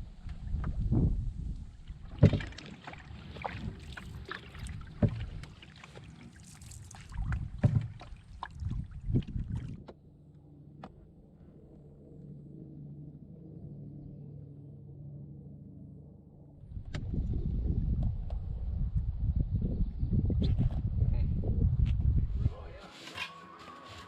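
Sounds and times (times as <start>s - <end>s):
paddle splashing water: 1.6s - 10.0s.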